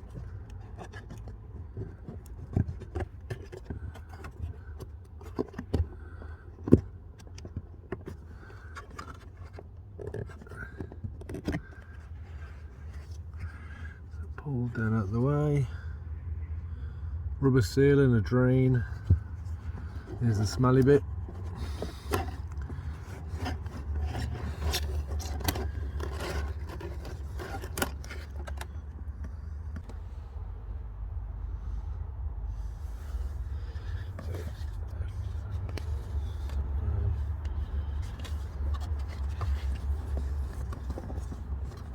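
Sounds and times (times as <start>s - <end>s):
plastic trim clicking and scraping: 0.0s - 13.8s, 19.0s - 30.0s, 33.8s - 41.9s.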